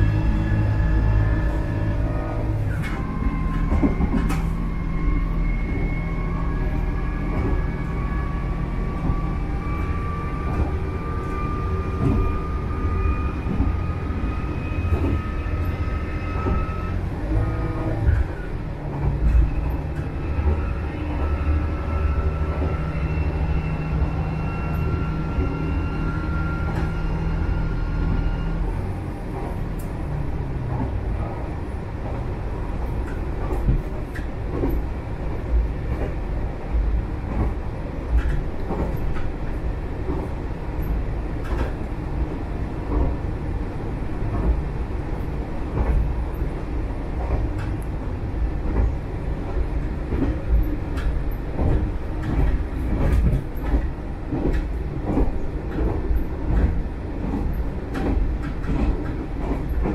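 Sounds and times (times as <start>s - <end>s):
railcar engine droning: 0.0s - 59.9s
wheels rumbling on rail: 0.0s - 59.9s
clicks over rail joints: 48.6s - 59.9s.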